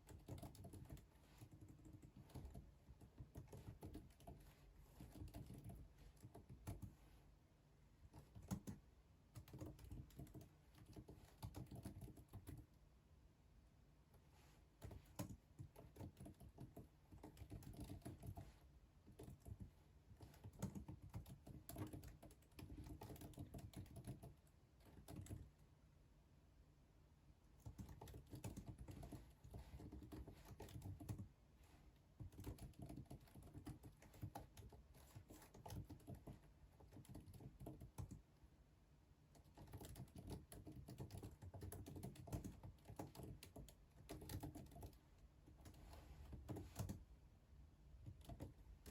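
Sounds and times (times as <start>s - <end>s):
typing on computer keyboard: 0.0s - 7.0s, 8.0s - 12.8s, 14.8s - 25.5s, 27.6s - 31.3s, 32.2s - 38.3s, 39.3s - 47.0s, 48.0s - 48.9s.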